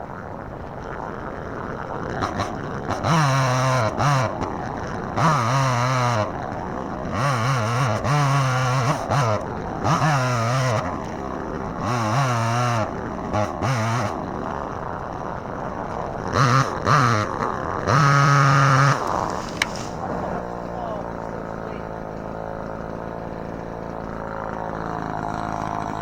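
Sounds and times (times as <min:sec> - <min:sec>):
chainsaw cutting: 0:00.0 - 0:26.0.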